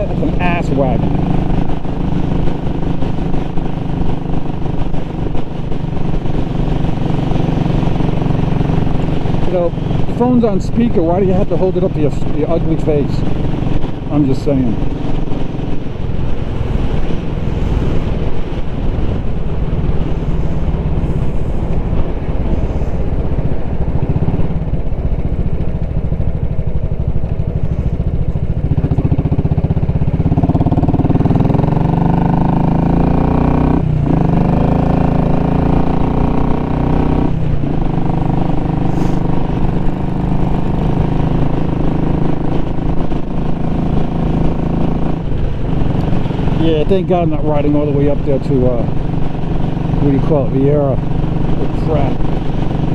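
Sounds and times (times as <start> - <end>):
motorcycle engine riding: 0.0 - 52.9.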